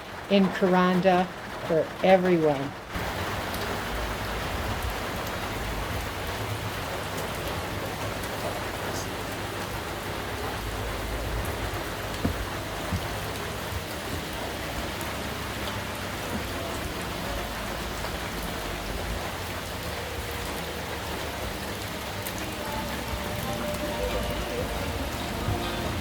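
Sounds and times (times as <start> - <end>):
steady rain falling: 0.0 - 26.0
faint knocks: 12.1 - 14.8.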